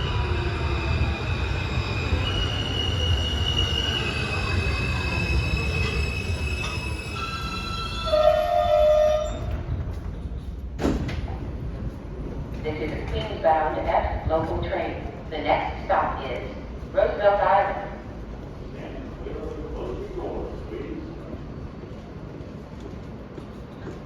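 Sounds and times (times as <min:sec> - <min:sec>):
train wheels squealing: 0:00.0 - 0:09.6
train rumble: 0:00.0 - 0:24.0.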